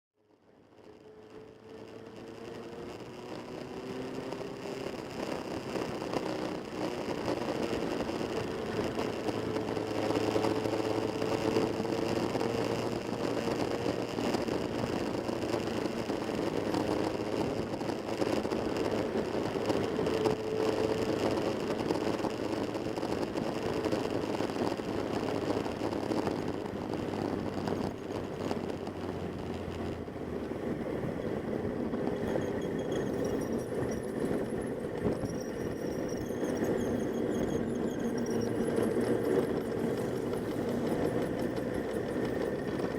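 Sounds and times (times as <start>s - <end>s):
motorcycle engines running: 0.4s - 42.9s.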